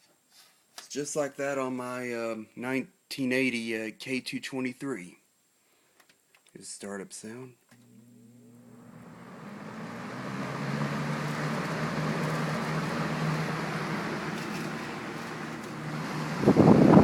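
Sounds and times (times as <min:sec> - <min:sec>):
box fan motor hum: 0:07.9 - 0:17.0
rush of air from fan: 0:09.9 - 0:17.0.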